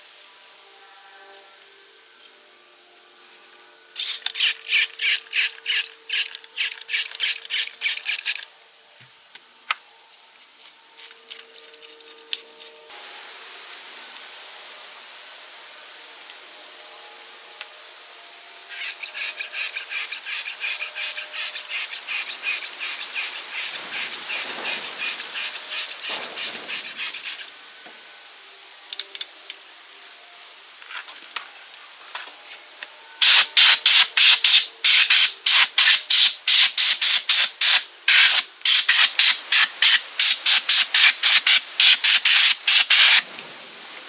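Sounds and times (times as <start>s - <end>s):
hand tool rasping strokes: 4.0s - 8.5s, 18.7s - 27.5s, 33.2s - 43.3s.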